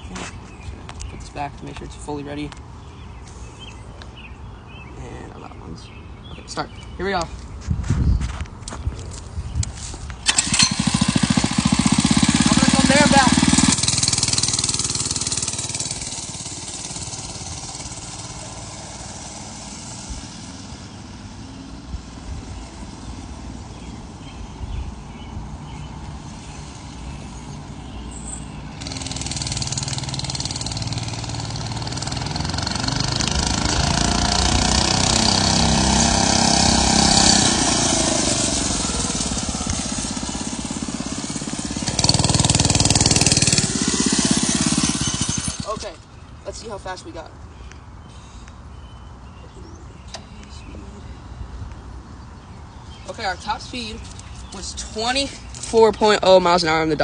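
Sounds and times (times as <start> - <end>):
mini bike engine running hard: 10.2 - 21.9, 28.8 - 46.0.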